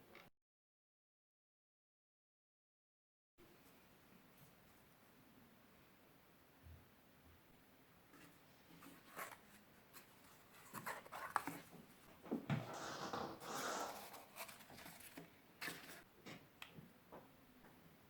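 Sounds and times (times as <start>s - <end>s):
scraping cardboard: 12.5s - 16.0s.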